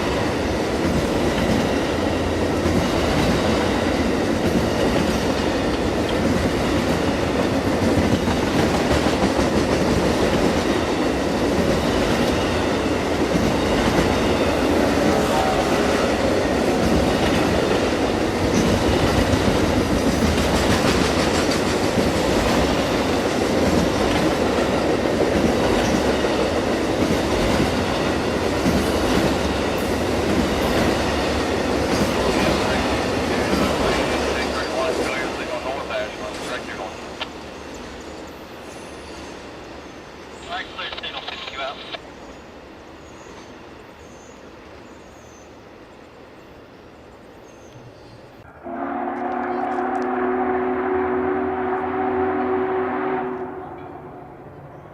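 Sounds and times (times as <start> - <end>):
clickety-clack over rail joints: 0.0 - 38.2
train wheels rumbling on rails: 0.0 - 42.0.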